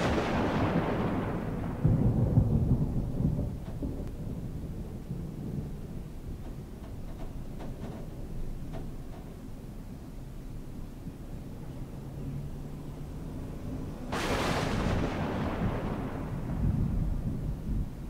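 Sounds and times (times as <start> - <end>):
thunderclap: 0.0 - 9.1, 13.5 - 18.0
deep rolling thunder rumble: 0.0 - 18.0.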